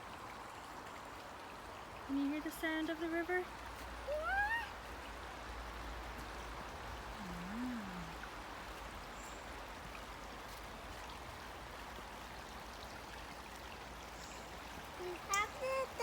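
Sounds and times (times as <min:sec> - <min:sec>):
river flowing: 0:00.0 - 0:16.0.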